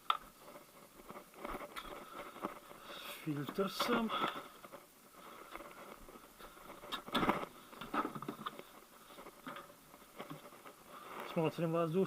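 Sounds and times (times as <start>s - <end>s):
plastic clicks and rustling: 3.4s - 11.4s.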